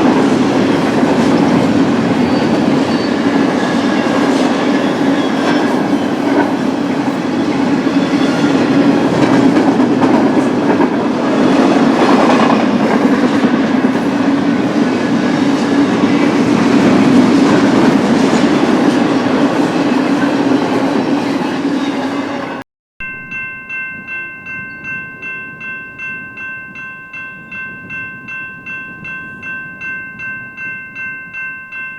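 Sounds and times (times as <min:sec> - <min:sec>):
freight train rolling past: 0:00.0 - 0:22.6.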